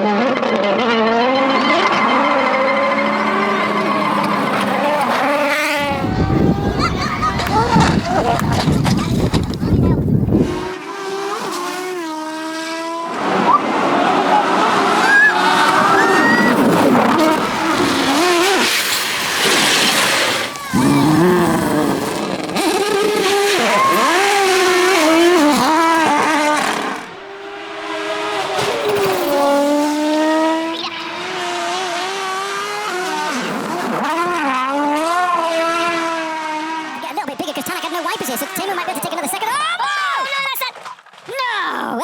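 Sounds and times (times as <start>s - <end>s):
rally car engines at full throttle: 0.0s - 42.0s.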